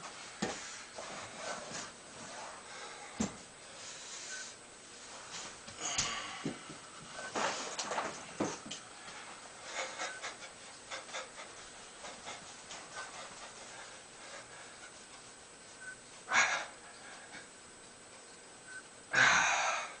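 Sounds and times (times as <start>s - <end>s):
person breathing hard: 5.8s - 7.8s, 8.9s - 15.1s, 19.1s - 20.0s.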